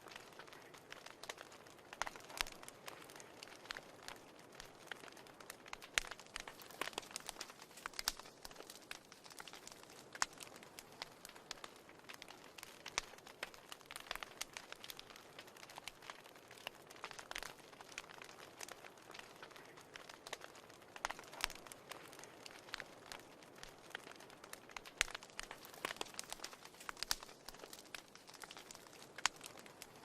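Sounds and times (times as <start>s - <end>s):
faint steady hiss: 0.0s - 30.0s
fire crackling and popping: 0.0s - 30.0s.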